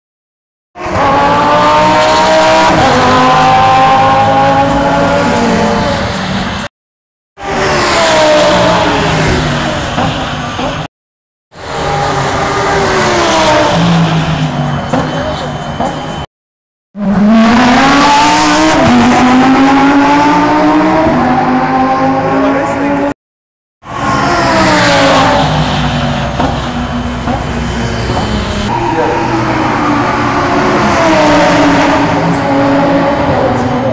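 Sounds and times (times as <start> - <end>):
race car engine accelerating: 0.8 - 6.2, 17.0 - 23.2.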